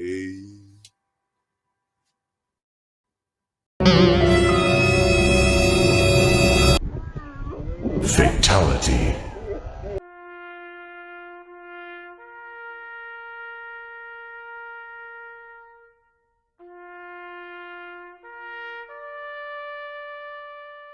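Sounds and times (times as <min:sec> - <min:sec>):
trumpet-like brass notes: 0:03.8 - 0:06.8, 0:10.0 - 0:20.9.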